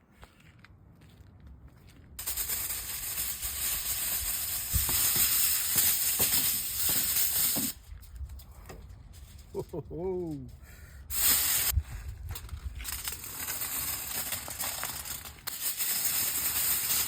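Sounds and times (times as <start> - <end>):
steady hiss: 2.2 - 7.8, 9.2 - 11.8, 12.8 - 17.0.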